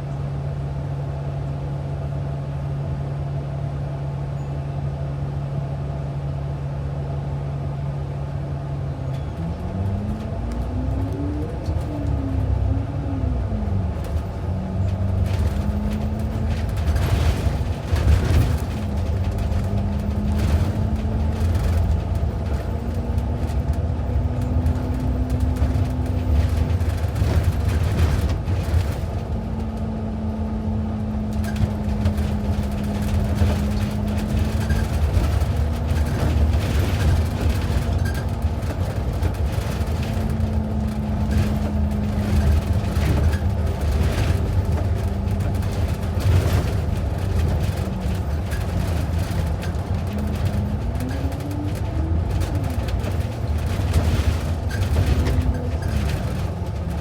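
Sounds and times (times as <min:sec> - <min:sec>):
bus engine and road rumble: 0:00.0 - 0:57.0
rattles and knocks in bus cabin: 0:01.0 - 0:57.0.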